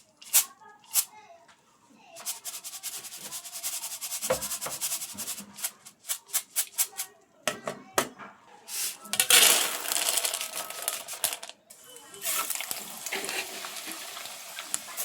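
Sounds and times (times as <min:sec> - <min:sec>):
dry rice rattling in container: 0:02.2 - 0:06.9, 0:09.2 - 0:11.4.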